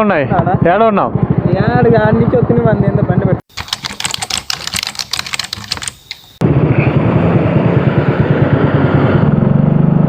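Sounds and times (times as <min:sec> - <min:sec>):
moped engine running: 0:00.3 - 0:10.0
short clicks: 0:03.5 - 0:06.4.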